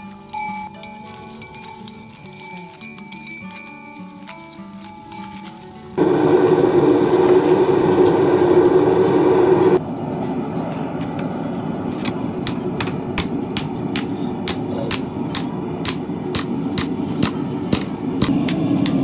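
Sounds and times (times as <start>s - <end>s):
loud steady drone: 6.0s - 9.8s
continuous rushing background: 10.9s - 19.0s
hammer striking metal: 12.0s - 19.0s.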